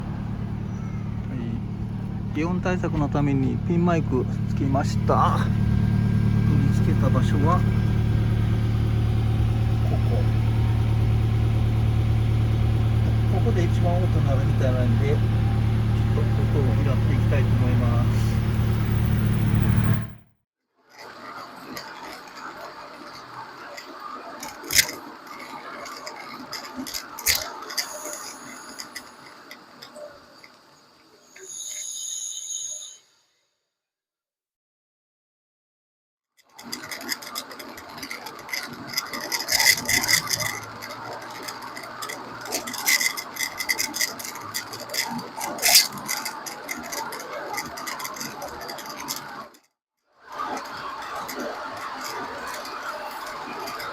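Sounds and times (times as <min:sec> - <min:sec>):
road noise: 0:00.0 - 0:20.2, 0:20.9 - 0:31.4, 0:36.6 - 0:49.6, 0:50.3 - 0:53.9
wheel clicking and rattling: 0:00.0 - 0:20.2, 0:20.9 - 0:30.9, 0:36.4 - 0:49.7, 0:50.3 - 0:53.9
light irregular ticking: 0:36.6 - 0:49.5.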